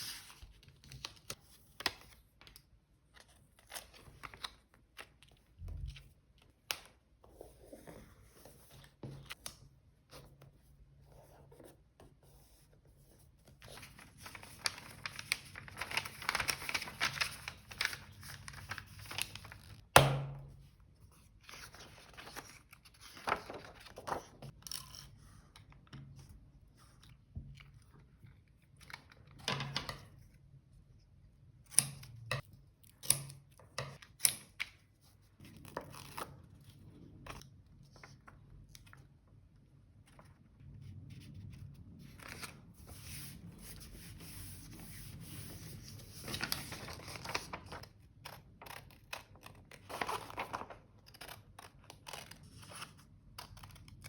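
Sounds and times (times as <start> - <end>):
paper rustling: 13.4 - 19.9, 21.3 - 24.6, 42.1 - 53.0.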